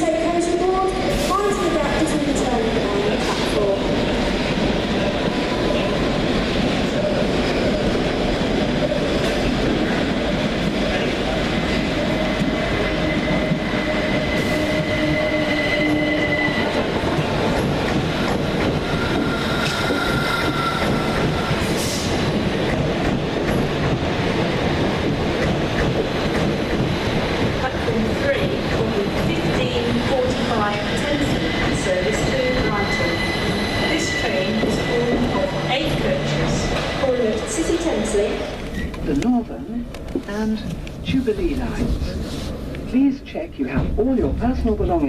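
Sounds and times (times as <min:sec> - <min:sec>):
train rumble with wheel noise: 0:00.0 - 0:45.0
high squealing tones: 0:12.7 - 0:16.9, 0:18.8 - 0:21.8, 0:32.2 - 0:36.5.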